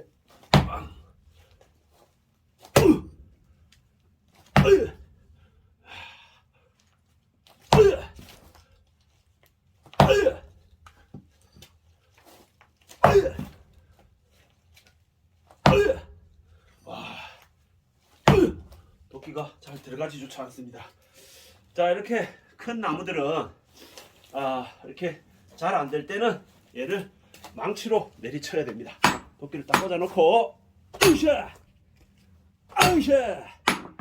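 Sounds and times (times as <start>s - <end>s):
axe blows into log: 2.8s - 3.2s.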